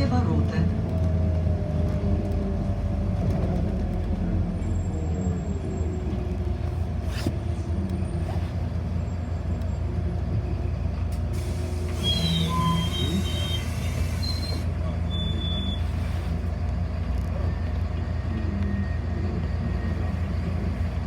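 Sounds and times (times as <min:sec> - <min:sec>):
bus engine and road noise drone: 0:00.0 - 0:21.0.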